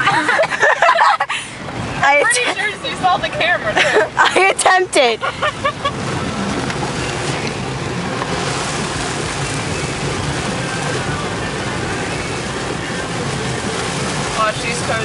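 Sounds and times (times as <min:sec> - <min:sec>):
low engine and road hum: 0:00.0 - 0:15.0
tyres on wet road: 0:00.0 - 0:15.0
rain on car body: 0:05.6 - 0:15.0.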